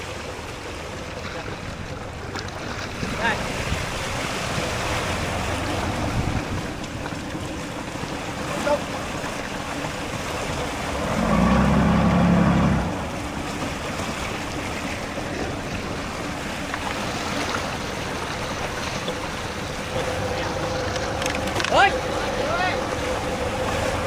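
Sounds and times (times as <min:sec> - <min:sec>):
sea waves: 0:00.0 - 0:24.0
wind: 0:00.0 - 0:24.0
low rumble: 0:19.3 - 0:24.0.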